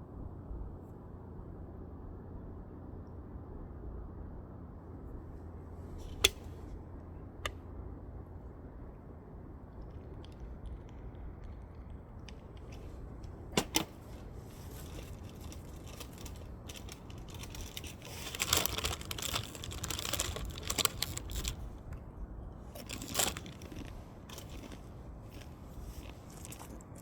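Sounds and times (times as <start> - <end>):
low fire rumble: 0.0 - 27.0
fire popping: 9.6 - 21.9
firewood crackling: 9.6 - 22.0, 22.6 - 27.0.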